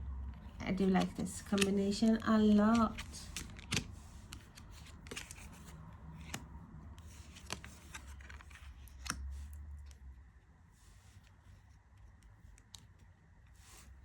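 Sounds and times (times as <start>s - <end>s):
playing cards clicking: 0.8s - 6.5s, 7.1s - 9.3s.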